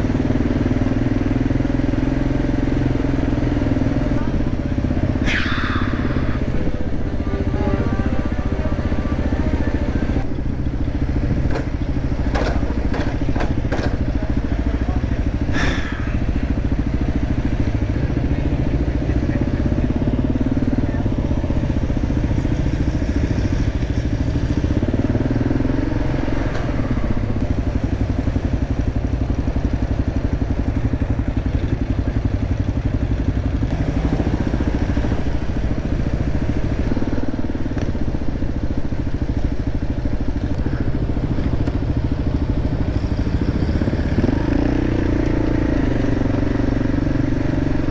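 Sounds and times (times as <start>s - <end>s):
dirt bike engine running: 0.0s - 47.9s
sharp clicks and knocks: 11.4s - 14.1s.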